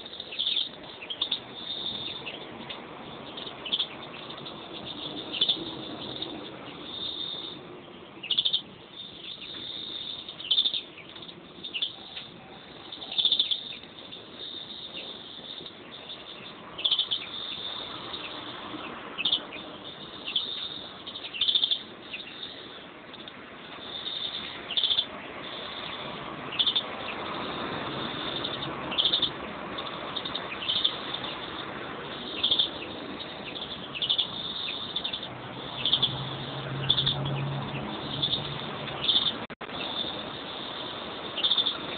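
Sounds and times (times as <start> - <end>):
continuous bird twittering: 0.0 - 41.9
finches chirping: 0.0 - 41.9.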